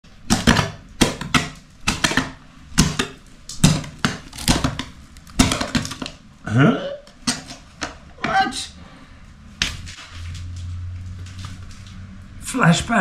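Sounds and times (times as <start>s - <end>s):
hand tool striking concrete: 5.4s - 6.1s.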